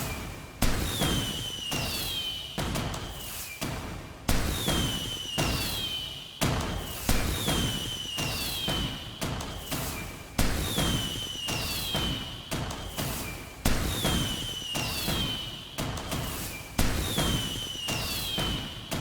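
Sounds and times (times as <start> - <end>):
firework whistle sliding down: 1.0 - 2.4, 4.7 - 6.1, 6.9 - 9.1, 10.7 - 12.3, 12.9 - 15.6, 16.2 - 18.9.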